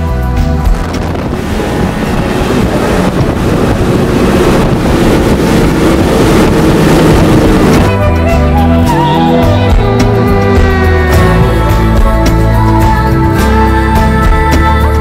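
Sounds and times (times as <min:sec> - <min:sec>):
wind buffeting microphone: 0:00.0 - 0:08.7
rushing water: 0:00.0 - 0:13.6
boat engine running: 0:00.0 - 0:15.0.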